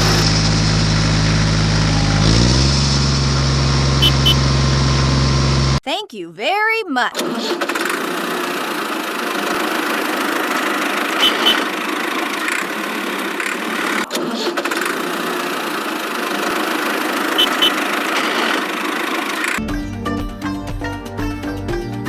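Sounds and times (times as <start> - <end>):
motor running steadily: 0.0 - 5.8
music: 19.6 - 22.0.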